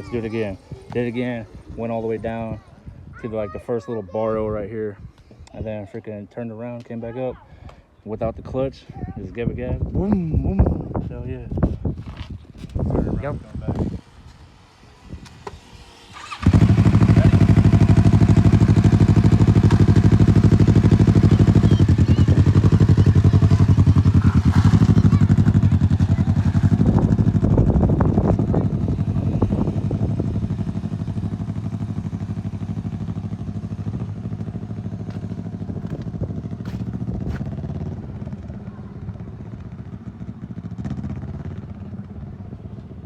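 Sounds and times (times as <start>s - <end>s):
motorcycle engine running: 12.8s - 43.0s.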